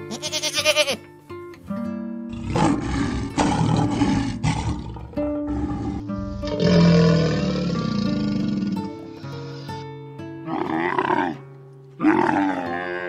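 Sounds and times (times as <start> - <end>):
goat bleating: 0.0 - 1.1
plucked guitar music: 0.0 - 13.0
rough animal roar: 2.3 - 9.8, 10.4 - 11.4, 12.0 - 13.0.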